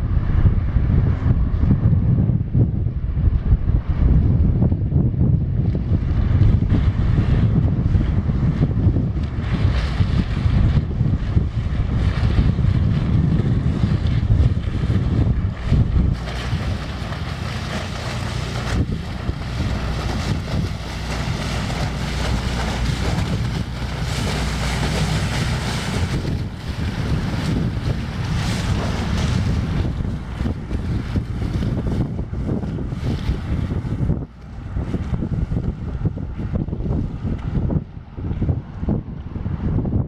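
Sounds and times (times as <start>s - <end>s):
wind buffeting microphone: 0.0s - 40.0s
ship diesel engine running: 9.2s - 36.5s.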